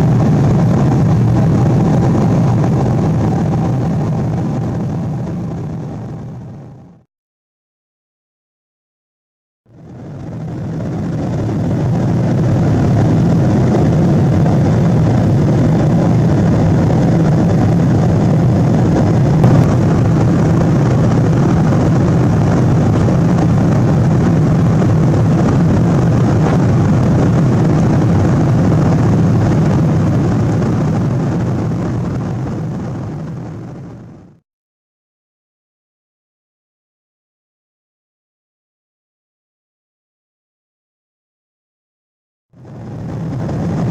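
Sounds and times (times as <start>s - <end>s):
airplane cabin engine rumble: 0.0s - 7.0s, 9.7s - 34.4s, 42.6s - 43.9s.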